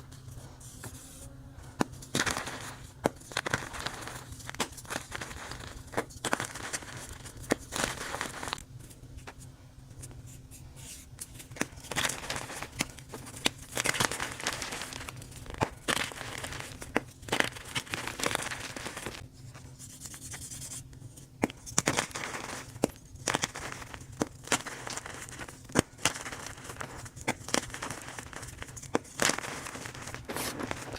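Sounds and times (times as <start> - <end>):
chalk blocks crunching: 1.8 - 8.6, 21.5 - 30.9.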